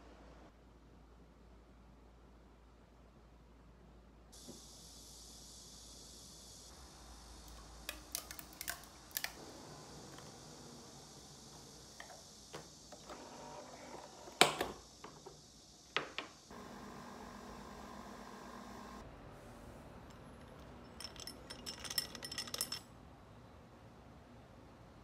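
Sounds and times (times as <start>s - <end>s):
coffee machine brewing hum: 4.4s - 21.8s.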